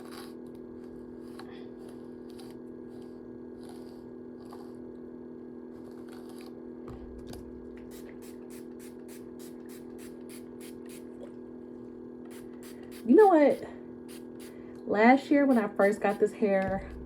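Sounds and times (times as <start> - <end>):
steady low hum: 0.0 - 17.0
brush swishing on hair: 15.4 - 16.4.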